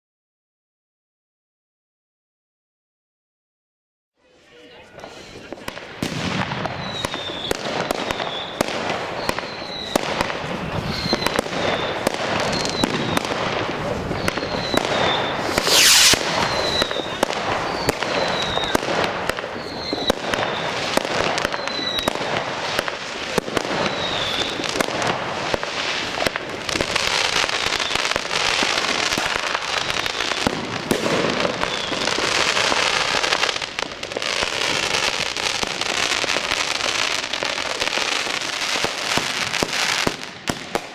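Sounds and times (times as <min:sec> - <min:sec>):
firework crackling: 0:04.9 - 0:40.9
firework bangs: 0:05.0 - 0:40.9
loud firework hiss: 0:08.6 - 0:19.8
high firework chirps: 0:14.0 - 0:19.0.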